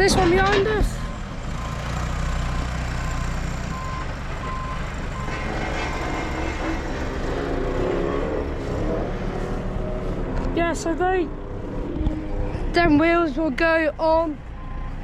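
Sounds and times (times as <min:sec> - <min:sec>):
diesel engine running: 0:00.0 - 0:15.0
reversing alarm beeping: 0:02.9 - 0:05.7, 0:14.5 - 0:15.0.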